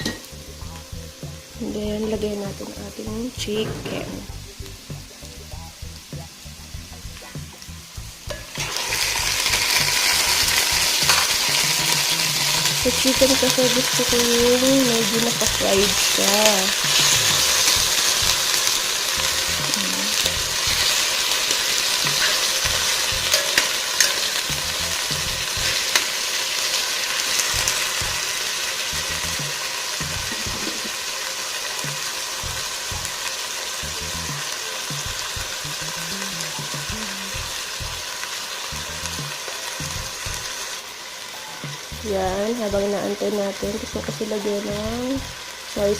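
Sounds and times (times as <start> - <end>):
chicken sizzling in hot oil: 0.0 - 45.9.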